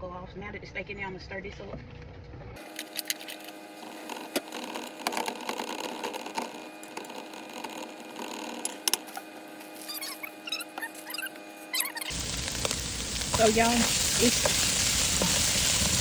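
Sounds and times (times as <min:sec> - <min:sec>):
steak sizzling in butter: 0:12.1 - 0:16.0.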